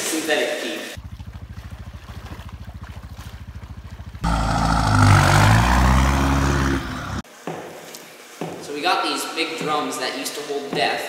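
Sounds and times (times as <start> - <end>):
engine idling and revving: 1.0 - 7.2.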